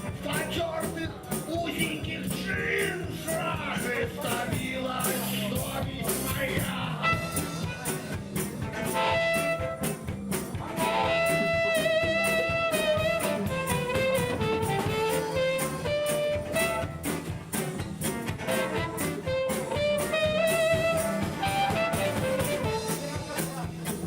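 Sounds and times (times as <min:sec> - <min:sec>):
bass line: 0:00.0 - 0:24.0
drum kit beat: 0:00.0 - 0:24.0
reedy wind instrument melody: 0:07.0 - 0:07.9, 0:08.8 - 0:17.4, 0:18.4 - 0:23.2.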